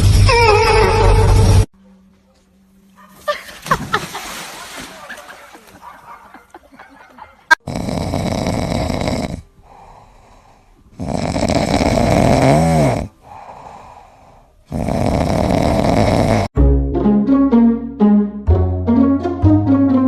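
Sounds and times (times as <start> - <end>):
animal snoring loudly: 7.6 - 10.3, 10.9 - 13.2, 14.7 - 16.5.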